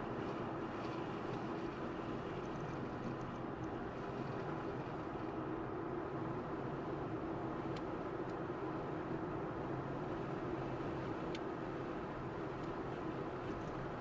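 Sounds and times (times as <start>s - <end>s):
car road and engine noise: 0.0s - 14.0s
faint ticks: 11.3s - 11.5s.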